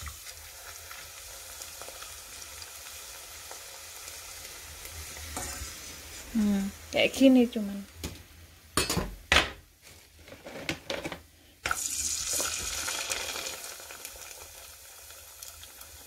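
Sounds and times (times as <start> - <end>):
cracker sizzling in hot oil: 0.0 - 7.0, 11.6 - 16.0.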